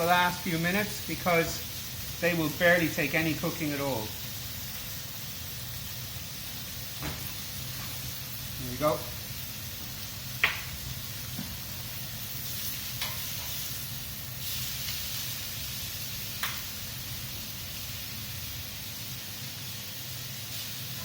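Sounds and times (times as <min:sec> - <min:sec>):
vegetables sizzling on a grill: 0:00.0 - 0:21.0.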